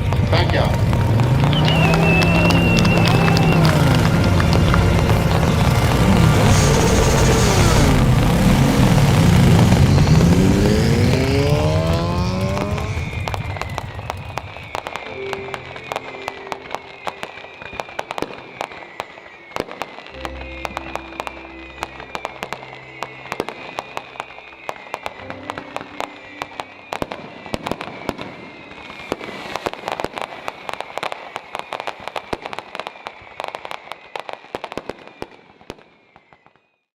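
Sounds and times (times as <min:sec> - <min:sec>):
music with held notes: 0:00.0 - 0:12.6, 0:14.8 - 0:28.7
crackling and popping: 0:00.0 - 0:36.6.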